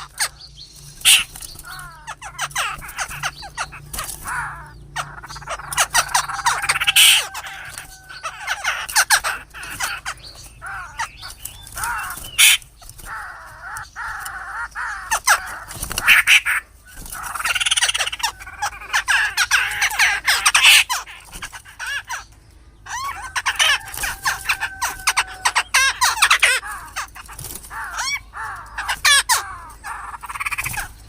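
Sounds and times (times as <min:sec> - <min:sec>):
birds harsh calls: 0:00.0 - 0:31.0.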